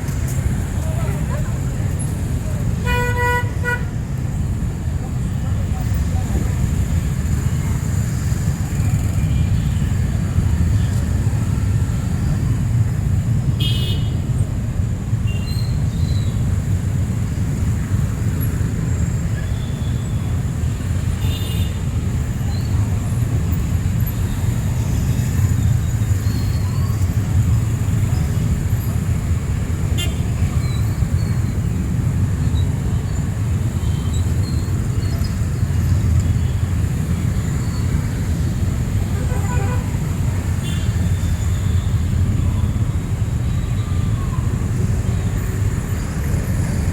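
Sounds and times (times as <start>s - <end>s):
traffic rumble: 0.0s - 46.9s.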